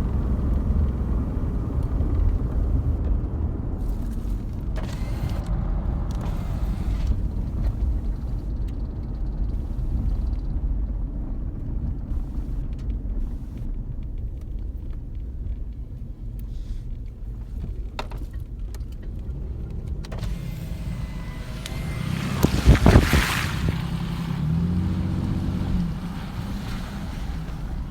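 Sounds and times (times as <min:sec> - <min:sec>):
engine low rumble: 0:00.0 - 0:27.9.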